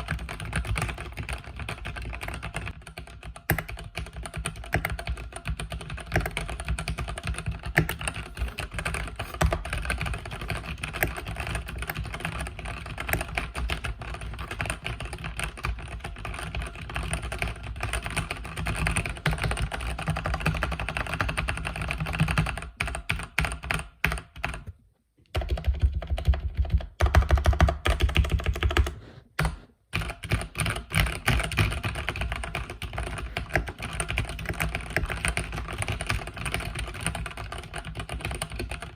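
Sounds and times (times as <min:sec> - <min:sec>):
mechanical keyboard typing: 0:00.0 - 0:24.7, 0:25.3 - 0:38.9.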